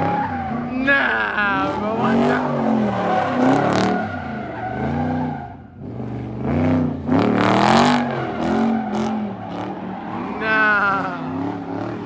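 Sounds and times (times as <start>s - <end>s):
tires squealing: 0.0s - 12.0s
car engine revving hard: 1.5s - 10.4s.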